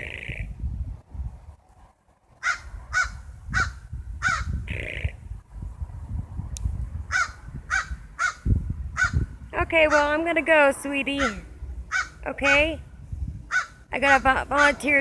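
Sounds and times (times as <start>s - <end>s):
crows cawing: 2.4s - 4.5s, 7.1s - 8.4s, 9.0s - 9.2s, 11.2s - 12.2s, 13.5s - 13.8s.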